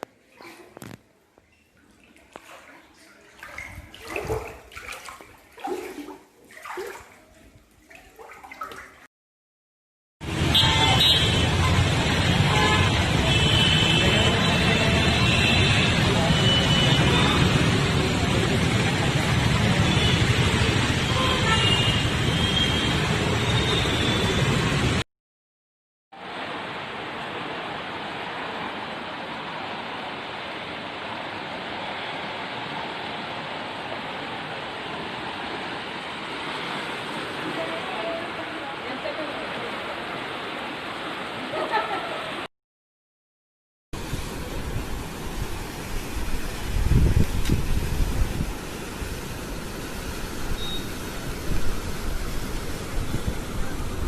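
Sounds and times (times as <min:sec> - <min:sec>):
floodwater splashing and gushing: 0:00.0 - 0:09.1, 0:26.2 - 0:42.5, 0:44.0 - 0:54.0.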